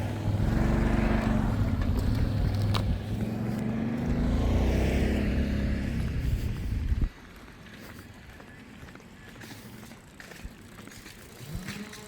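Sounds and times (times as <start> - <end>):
engine humming: 0.0 - 8.2.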